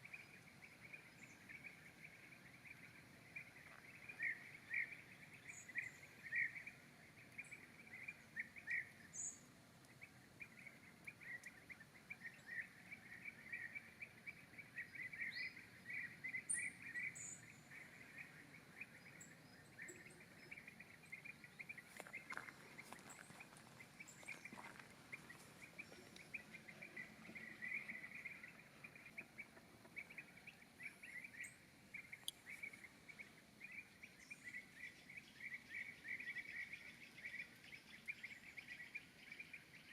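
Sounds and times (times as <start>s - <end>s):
faint clicks: 32.1s - 32.9s.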